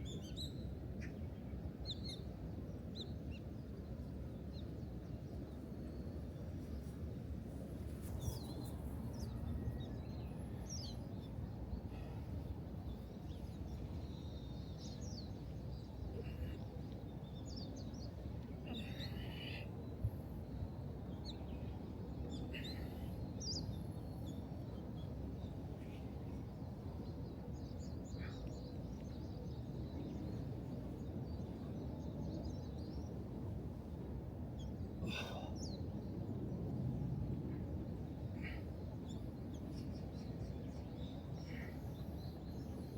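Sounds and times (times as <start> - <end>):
low rumble of wind: 0.0 - 42.9.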